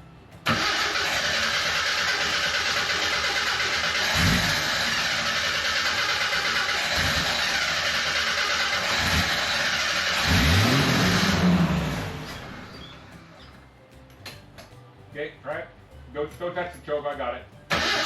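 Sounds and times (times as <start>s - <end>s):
car engine revving and stalling: 0.4s - 13.4s, 17.7s - 18.0s.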